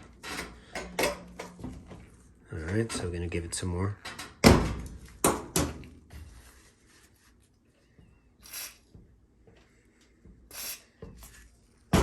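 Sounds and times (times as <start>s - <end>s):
aerosol can spraying: 8.4s - 8.9s, 10.5s - 10.9s.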